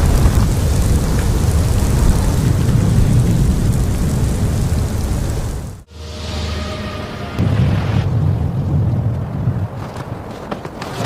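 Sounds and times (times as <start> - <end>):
wind buffeting microphone: 0.0 - 5.9, 7.4 - 10.5
storm wind rushing: 0.0 - 10.3.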